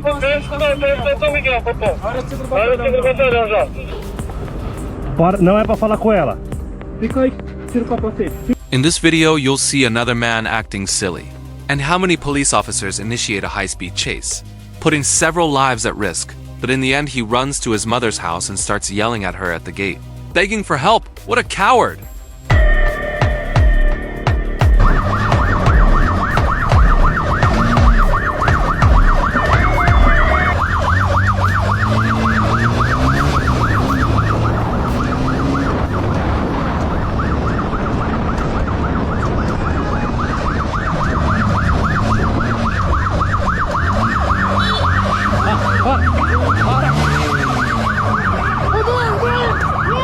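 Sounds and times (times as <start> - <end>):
vehicle engine: 0.0 - 5.4, 24.6 - 50.0
police siren warbling: 22.5 - 50.0.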